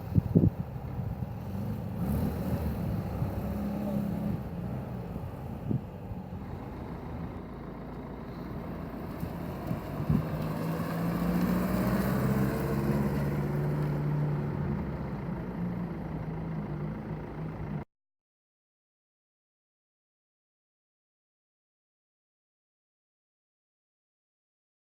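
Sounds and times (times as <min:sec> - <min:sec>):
vehicle driving past: 0:01.2 - 0:16.6.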